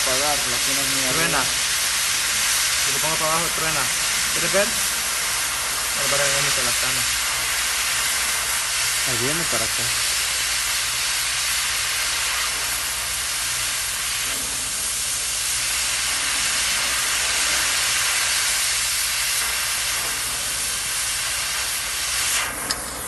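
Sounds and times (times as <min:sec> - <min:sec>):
torch flame hissing: 0:00.0 - 0:23.0
sharp click: 0:22.6 - 0:23.0.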